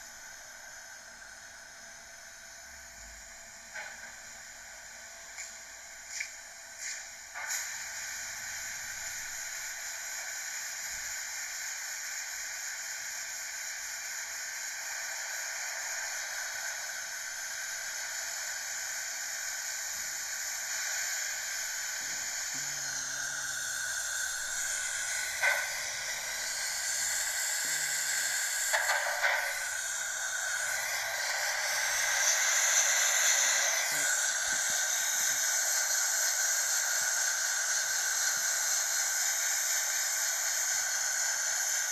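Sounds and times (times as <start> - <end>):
car wash hissing: 14.2 - 41.9.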